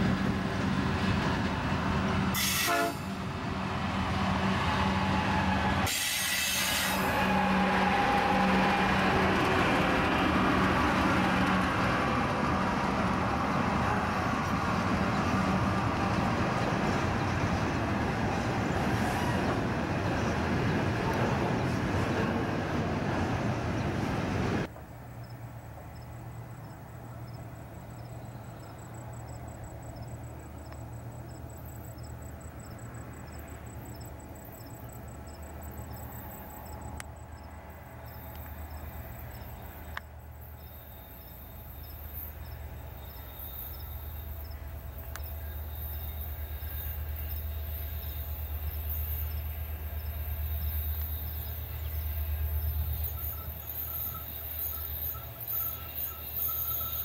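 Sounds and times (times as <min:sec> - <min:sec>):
diesel locomotive engine rumble: 0:00.0 - 0:57.0
insects chirping: 0:24.7 - 0:57.0.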